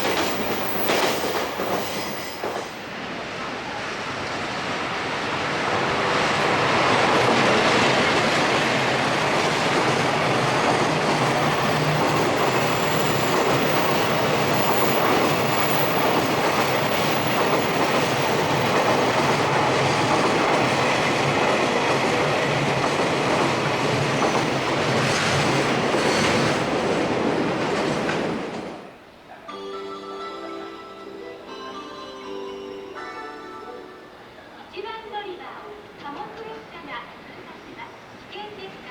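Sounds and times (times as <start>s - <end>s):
train wheels clattering on rail: 0.0s - 3.0s, 5.4s - 29.0s
chime-like melody: 29.5s - 34.2s.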